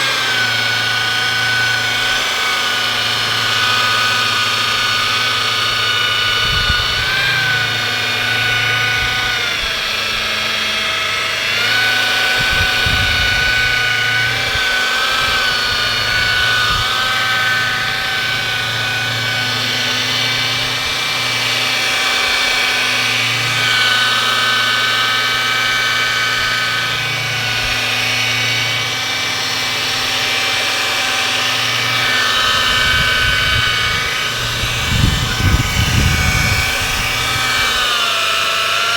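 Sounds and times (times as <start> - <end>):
electric polisher motor whine: 0.0 - 38.9.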